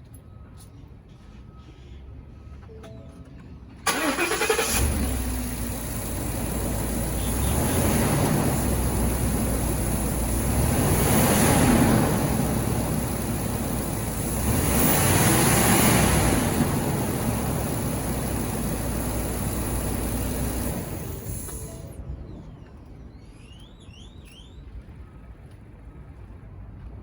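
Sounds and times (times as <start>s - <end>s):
truck engine revving and idling: 3.9s - 22.0s.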